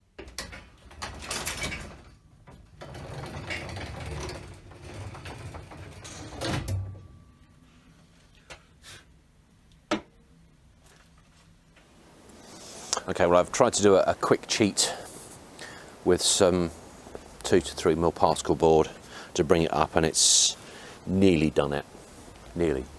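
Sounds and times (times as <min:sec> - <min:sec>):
objects rattling and scraping: 0:00.6 - 0:06.8.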